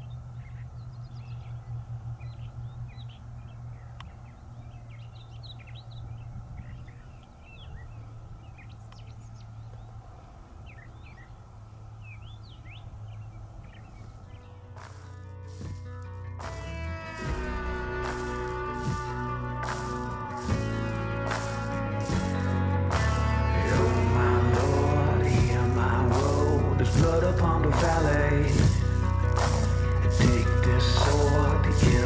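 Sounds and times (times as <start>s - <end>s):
small songbirds chirping: 0.0s - 15.9s
steady low rumble: 0.0s - 32.0s.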